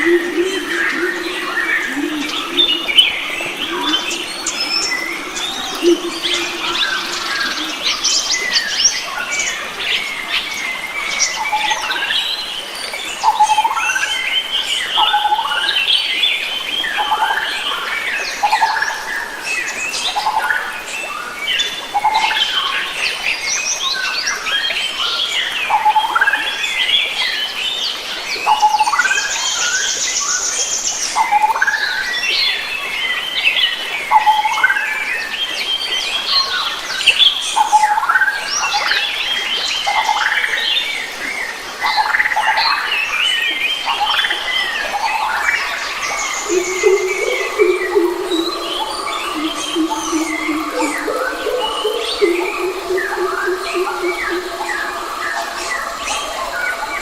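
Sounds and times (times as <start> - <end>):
bird repeating low note: 0.0 - 8.1, 46.2 - 55.8
birds chirping and calling: 0.0 - 10.5, 43.8 - 57.0.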